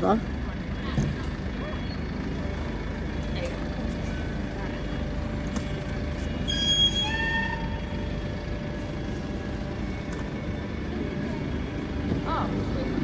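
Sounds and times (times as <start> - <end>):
low vehicle rumble: 0.0 - 13.0
high-pitched squeal: 6.3 - 8.0.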